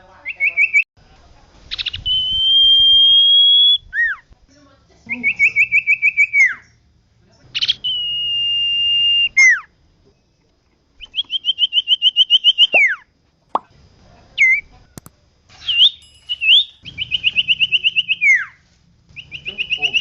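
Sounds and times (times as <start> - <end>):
bird singing whistles and trills: 1.7 - 4.2, 7.6 - 9.6, 11.0 - 12.9, 15.6 - 18.6, 19.2 - 20.0.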